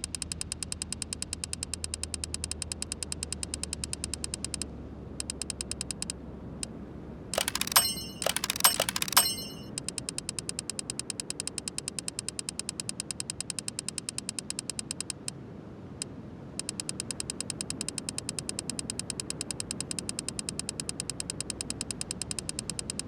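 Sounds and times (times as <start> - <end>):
even mechanical ticking: 0.0 - 6.1, 7.4 - 15.4, 16.6 - 23.0
sharp metallic clinks: 7.4 - 9.7.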